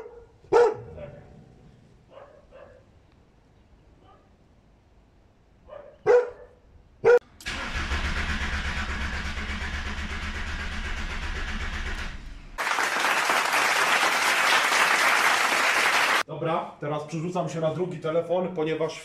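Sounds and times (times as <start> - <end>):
dog barking: 0.0 - 1.3, 2.1 - 2.9, 4.0 - 4.4, 5.6 - 7.2
diesel engine clattering: 7.4 - 12.6
applause and cheering: 12.6 - 16.2.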